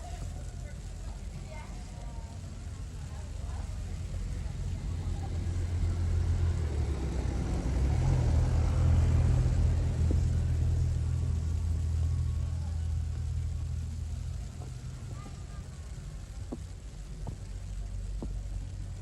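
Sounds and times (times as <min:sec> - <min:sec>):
vehicle passing: 0:03.1 - 0:16.3.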